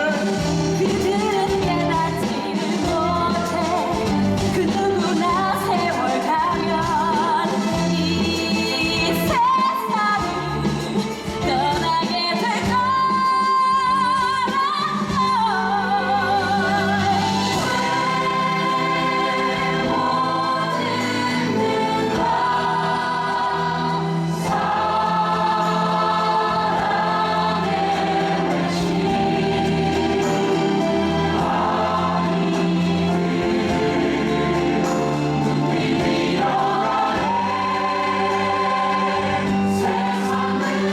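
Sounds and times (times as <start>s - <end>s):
orchestral accompaniment: 0.0s - 40.9s
cast and chorus singing: 14.4s - 40.9s.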